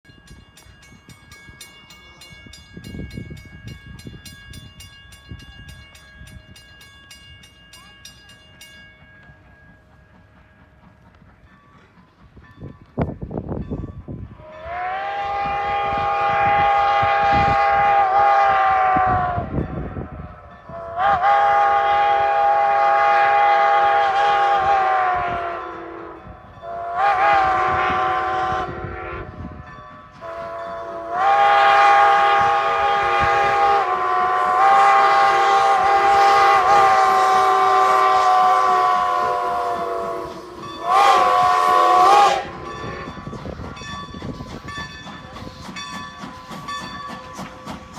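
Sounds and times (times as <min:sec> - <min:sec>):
train rumbling: 0:00.0 - 0:47.9
steam whistle blasts: 0:14.3 - 0:43.7.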